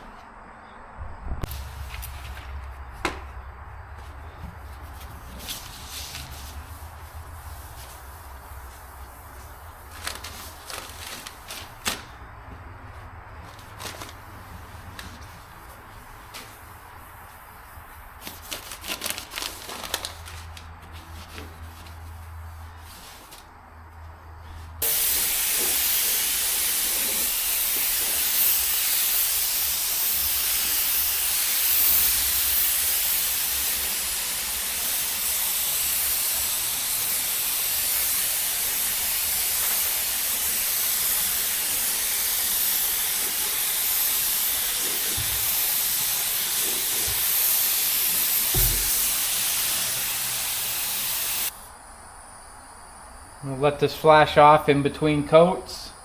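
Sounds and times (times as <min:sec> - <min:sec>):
paint spray gun hissing: 0:24.8 - 0:51.5.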